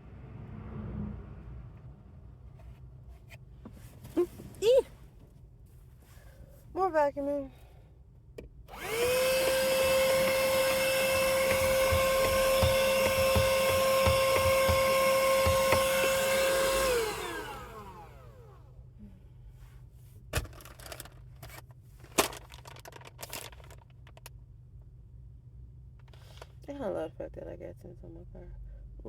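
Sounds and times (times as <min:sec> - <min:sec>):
vacuum cleaner running: 0:08.7 - 0:18.7
knocks and clicks: 0:09.9 - 0:17.0.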